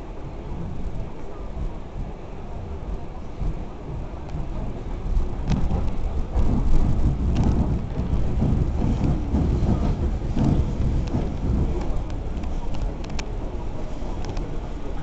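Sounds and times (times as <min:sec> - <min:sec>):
train running gear rumble: 0:00.0 - 0:15.0
sharp clicks and rattles: 0:05.4 - 0:13.4.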